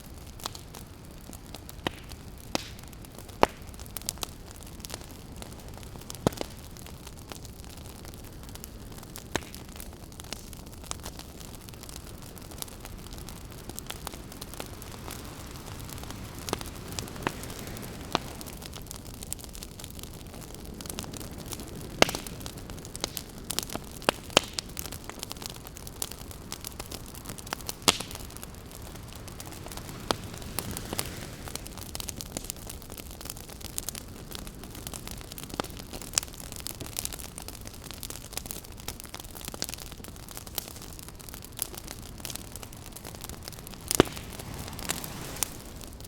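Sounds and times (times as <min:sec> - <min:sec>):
campfire crackling: 0:00.0 - 0:46.0
sharp fire pops: 0:00.0 - 0:46.0
ocean waves: 0:12.9 - 0:18.8, 0:27.3 - 0:31.9, 0:41.7 - 0:46.0.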